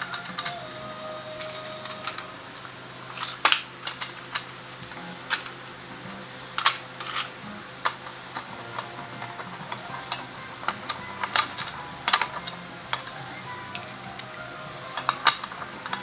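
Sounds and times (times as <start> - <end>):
faint steady hum: 0.0 - 16.0
sharp clicks of tools: 6.6 - 16.0
metallic clinks of tools: 10.6 - 16.0.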